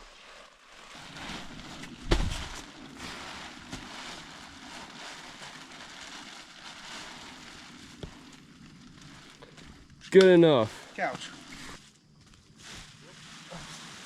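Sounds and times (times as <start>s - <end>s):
fabric rustling and whooshing: 0.0s - 9.4s
loud whump of inflatable: 2.0s - 2.6s.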